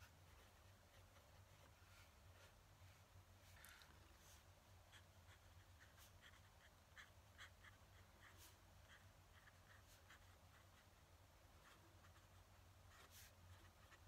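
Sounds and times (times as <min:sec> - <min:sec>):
low room hum: 0:00.0 - 0:14.0
pen nib scratching on paper: 0:03.6 - 0:14.0.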